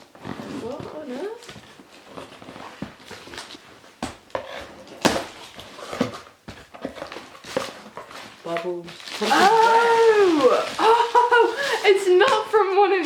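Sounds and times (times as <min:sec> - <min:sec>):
packaging rustling and crinkling: 0:00.0 - 0:13.0
sharp crackles: 0:08.4 - 0:12.6.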